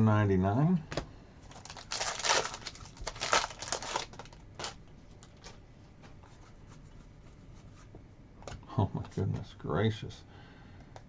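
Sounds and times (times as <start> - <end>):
card packaging crinkling: 1.5 - 5.6.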